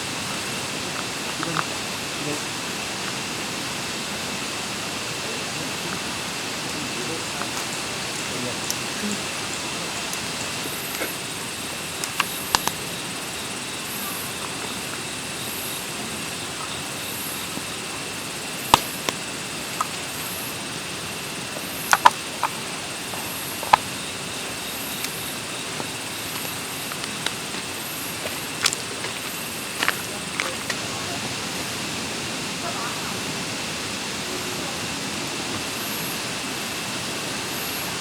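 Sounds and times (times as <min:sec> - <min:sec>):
mountain stream rushing: 0:00.0 - 0:38.0.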